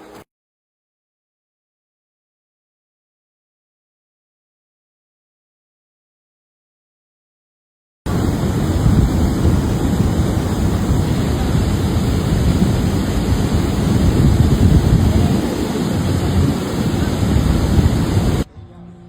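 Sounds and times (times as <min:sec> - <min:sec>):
wind buffeting microphone: 0:08.1 - 0:18.5.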